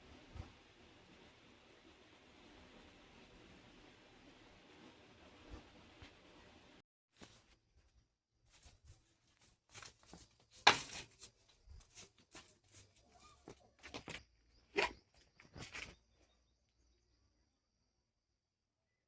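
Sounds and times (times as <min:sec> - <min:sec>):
calf knocking and scuffing: 0:09.7 - 0:14.2.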